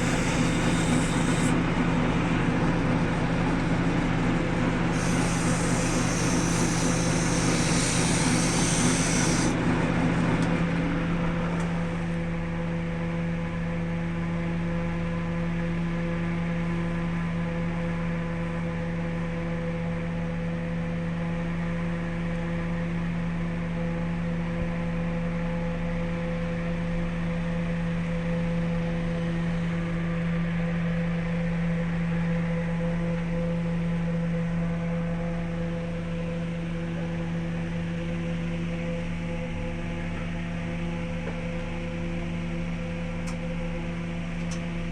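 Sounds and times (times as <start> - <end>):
tool hissing on spinning wood: 0.0 - 1.6, 4.9 - 9.7
wood lathe motor humming: 0.0 - 1.8, 4.7 - 10.4.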